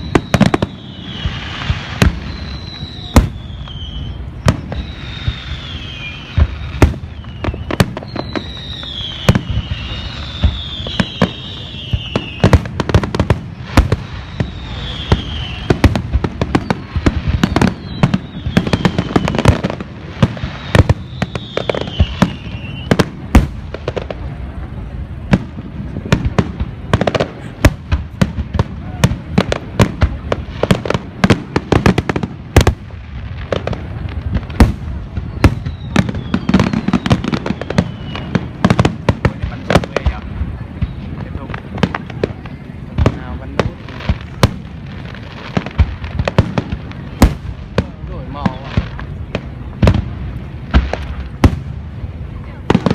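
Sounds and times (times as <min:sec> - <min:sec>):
fireworks bangs: 0:00.0 - 0:52.9
high falling whistling tones: 0:02.2 - 0:12.5.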